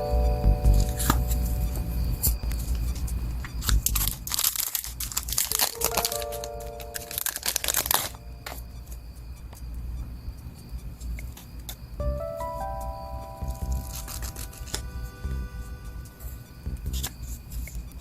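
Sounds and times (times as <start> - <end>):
packaging crinkling and tearing: 3.6 - 8.2, 13.8 - 14.9.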